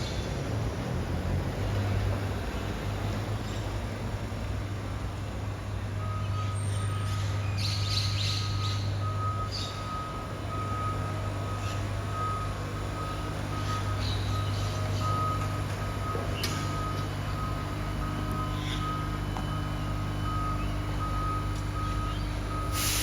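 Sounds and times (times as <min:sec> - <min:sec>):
truck low hum: 0:00.0 - 0:23.0
reversing beeper: 0:06.0 - 0:07.4, 0:08.2 - 0:23.0
short hisses: 0:22.7 - 0:23.0.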